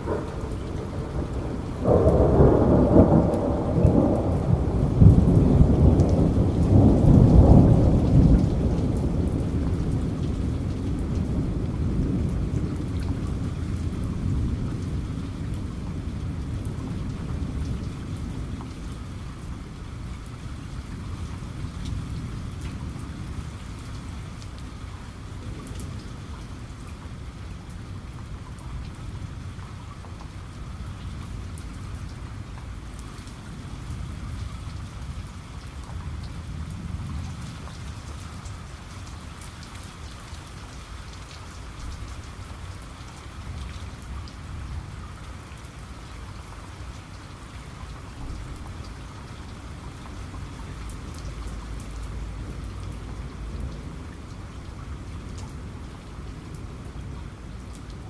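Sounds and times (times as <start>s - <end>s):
low thunder rumble: 0.0s - 29.6s
raindrops pattering: 0.0s - 58.0s
steady rain falling: 0.0s - 58.0s.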